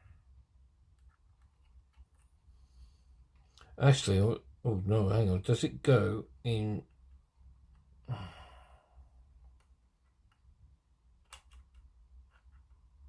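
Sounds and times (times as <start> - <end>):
person sighing: 8.0 - 9.0.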